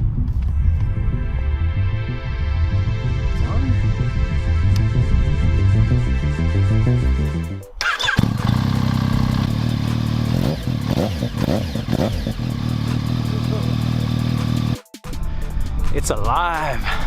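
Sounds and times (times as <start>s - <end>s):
background music with a beat: 0.0s - 7.8s, 8.7s - 17.0s
motorcycle engine starting and idling: 7.8s - 14.8s.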